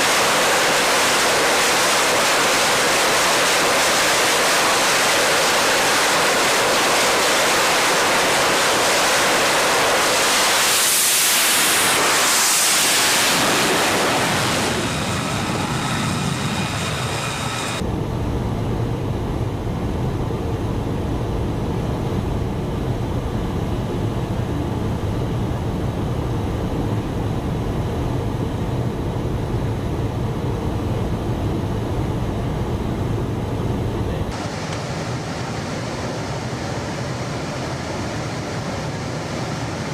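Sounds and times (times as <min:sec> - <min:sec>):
jet passing roar: 0:00.0 - 0:18.2
faint jet whine: 0:00.0 - 0:39.9
low steady engine rumble: 0:14.2 - 0:39.1.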